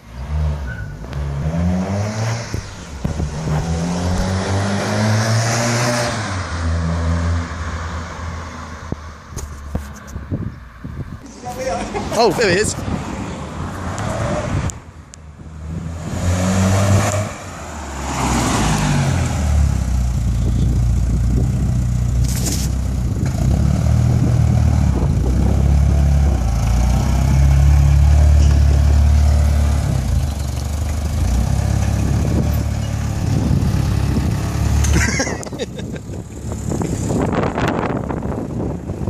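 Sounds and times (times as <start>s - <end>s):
car engine driving up: 0.0s - 11.4s, 13.0s - 39.0s.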